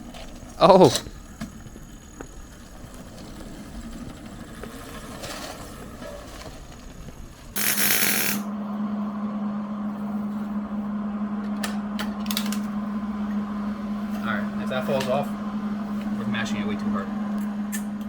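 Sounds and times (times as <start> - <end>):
small engine low rumble: 0.0 - 7.6, 8.2 - 18.0
steady hum: 0.0 - 18.0
loud burst of hiss: 7.6 - 8.4.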